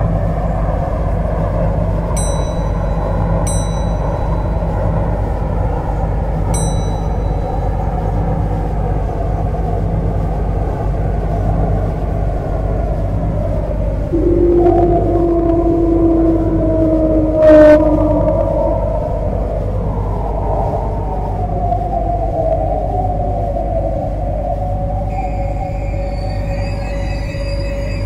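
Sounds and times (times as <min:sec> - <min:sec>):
steady tone: 0:00.0 - 0:28.0
train hum and rail noise: 0:00.0 - 0:28.0
short high pings: 0:02.2 - 0:04.7, 0:06.6 - 0:07.5.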